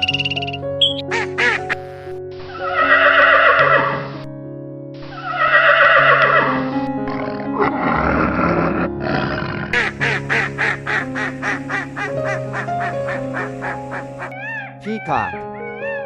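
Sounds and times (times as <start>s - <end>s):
background music with held chords: 0.0s - 16.0s
duck quacking rapidly: 9.8s - 15.4s.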